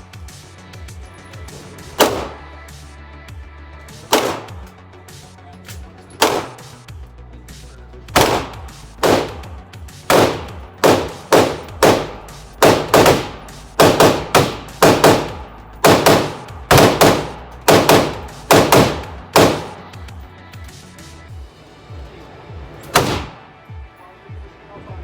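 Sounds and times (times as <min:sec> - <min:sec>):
gunshots with short echo: 0:01.8 - 0:02.5, 0:04.0 - 0:04.7, 0:06.2 - 0:06.8, 0:08.1 - 0:20.0, 0:22.9 - 0:23.4.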